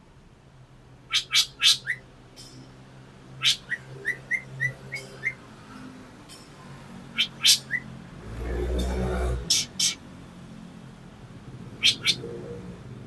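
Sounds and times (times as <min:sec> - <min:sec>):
bird sharp calls: 0:01.1 - 0:02.0, 0:03.4 - 0:05.5, 0:07.0 - 0:10.0, 0:11.7 - 0:12.7
bird short chirps: 0:09.5 - 0:10.0.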